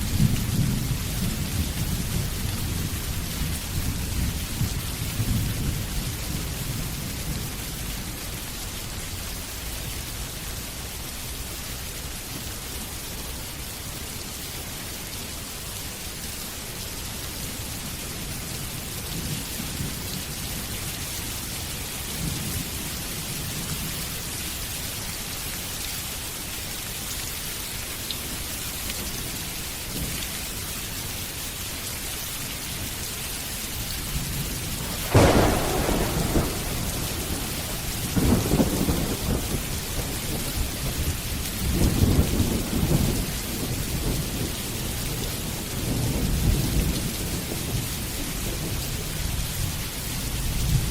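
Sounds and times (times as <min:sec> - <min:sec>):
steady rain hiss: 0:00.0 - 0:50.9
thunder rumbling: 0:34.0 - 0:49.8
loud thunderclap: 0:34.3 - 0:44.5.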